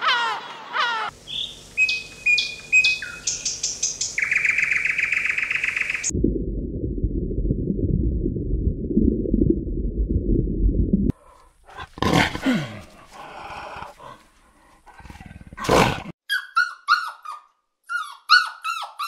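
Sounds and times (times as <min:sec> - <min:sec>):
gull calls: 0:00.0 - 0:01.5
buzzy bird trill: 0:01.2 - 0:06.1
low steady rumbling: 0:06.1 - 0:11.1.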